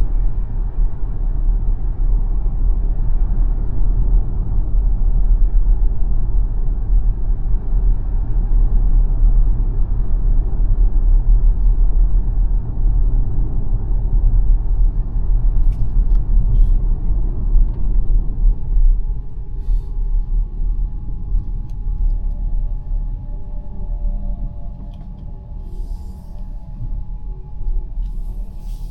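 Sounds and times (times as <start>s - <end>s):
road and tyre rumble: 14.0s - 28.9s
faint steady tone: 18.8s - 28.9s.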